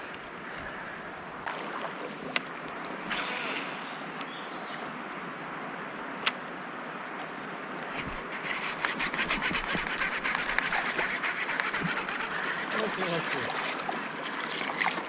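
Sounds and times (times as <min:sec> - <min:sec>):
wind: 0:00.0 - 0:15.0
moving water hissing: 0:01.5 - 0:04.2, 0:09.6 - 0:15.0.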